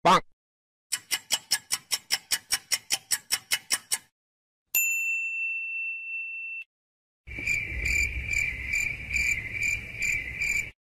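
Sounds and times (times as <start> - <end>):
bright ding: 4.8 - 6.7.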